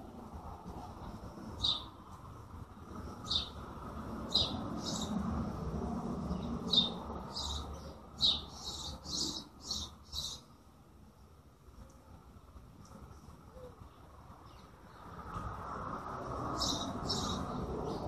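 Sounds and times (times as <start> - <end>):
low background noise: 0.0 - 18.0
small birds chirping: 1.5 - 2.0, 3.1 - 3.6, 4.2 - 5.2, 6.2 - 10.6, 16.5 - 18.0.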